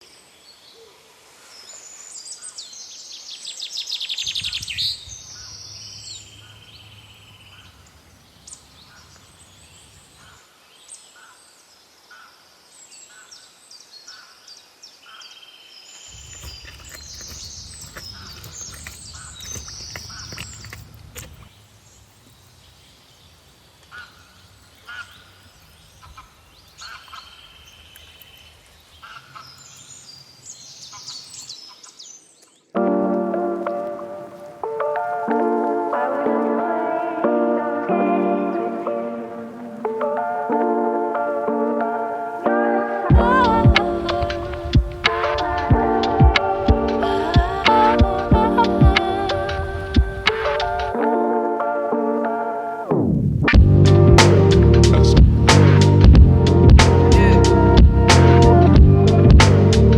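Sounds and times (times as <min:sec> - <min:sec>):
birds chirping and trilling: 0:00.3 - 0:32.8
low rumble: 0:53.5 - 0:59.9.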